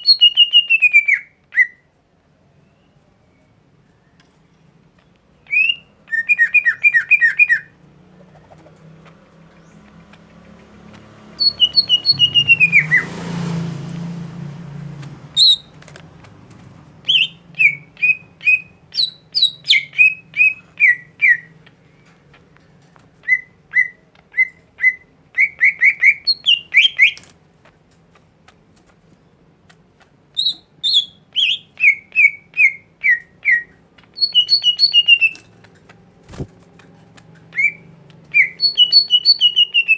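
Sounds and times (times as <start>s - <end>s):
songbird whistling: 0.0s - 1.9s, 5.4s - 7.7s, 11.4s - 13.1s, 15.4s - 15.7s, 17.0s - 21.5s, 23.2s - 27.2s, 30.4s - 35.5s, 37.4s - 39.9s.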